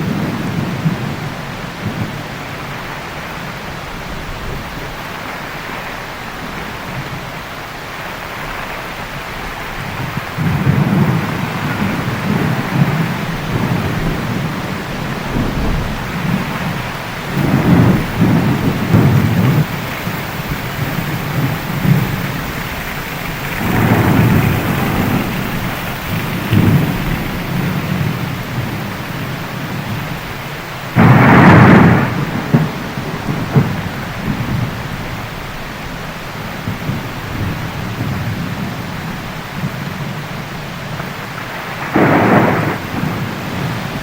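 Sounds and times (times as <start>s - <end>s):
loud thunderclap: 0.0s - 7.3s, 8.0s - 44.0s
heavy rain falling: 0.0s - 44.0s
rolling thunder: 0.0s - 44.0s.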